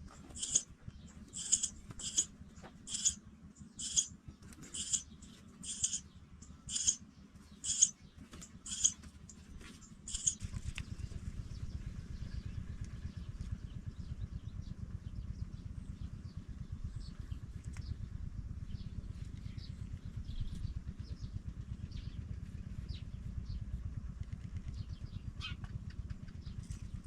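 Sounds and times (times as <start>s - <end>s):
low steady rumble: 0.0s - 27.0s
pipit calling: 0.2s - 2.3s, 2.9s - 7.0s, 7.6s - 9.4s, 10.1s - 10.4s.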